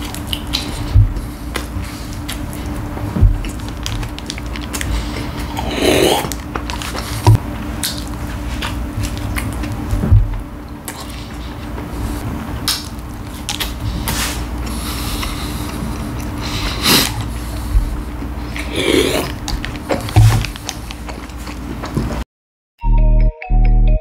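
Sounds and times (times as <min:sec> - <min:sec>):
person chewing food: 0:00.0 - 0:22.2
bites or gulps: 0:03.4 - 0:09.8.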